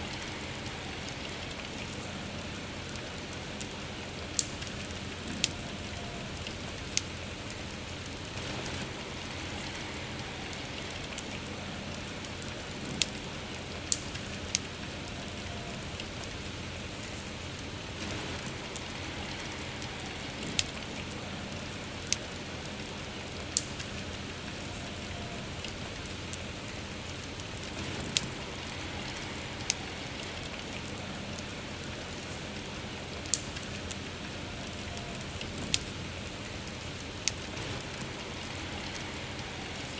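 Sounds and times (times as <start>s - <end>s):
campfire crackling and popping: 0.0s - 39.9s
steady rain: 0.0s - 39.9s.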